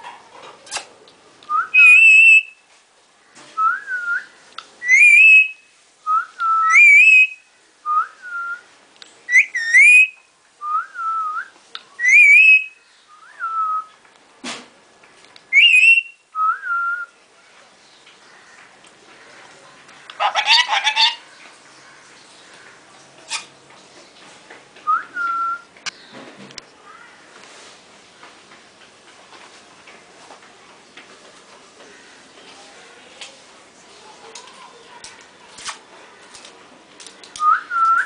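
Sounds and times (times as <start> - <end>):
parrot whistling: 1.5 - 2.5, 4.8 - 5.6, 6.4 - 7.4, 9.3 - 10.2, 12.0 - 13.9, 15.5 - 17.0.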